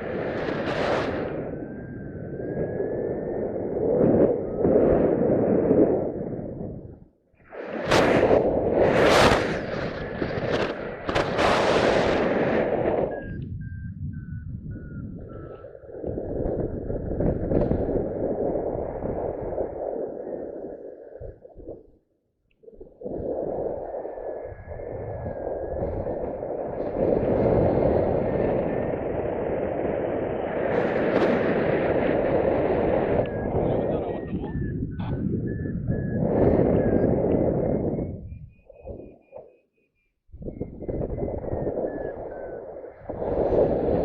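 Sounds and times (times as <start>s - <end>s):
wind buffeting microphone: 0.0s - 22.0s, 22.6s - 39.5s, 40.2s - 44.0s
variometer short beeps: 1.5s - 2.9s, 12.6s - 15.9s, 33.1s - 43.2s.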